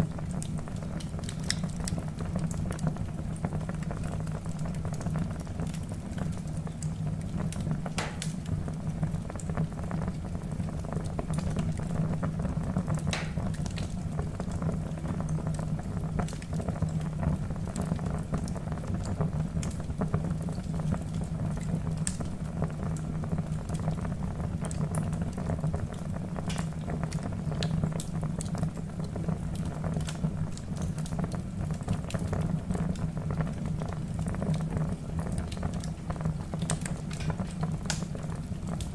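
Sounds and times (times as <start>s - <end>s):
low rumble of flame: 0.0s - 38.9s
logs crackling: 8.0s - 8.5s, 13.1s - 13.6s
sharp pops of fire: 8.0s - 8.6s, 13.1s - 13.9s, 26.5s - 26.7s, 36.7s - 38.2s.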